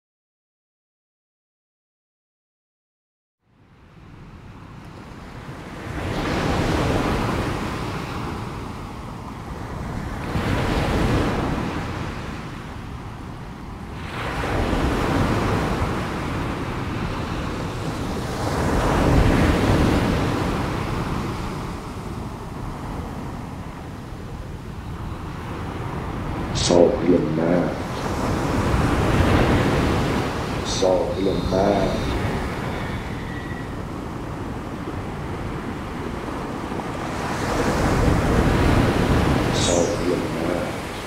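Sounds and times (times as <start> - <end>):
sea waves washing on shore: 4.6 - 41.0.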